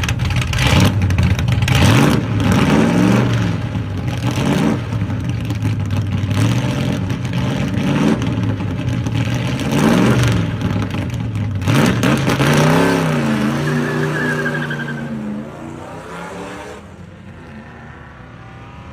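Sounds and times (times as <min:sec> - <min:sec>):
engine revving: 0:01.7 - 0:05.0, 0:11.6 - 0:18.9.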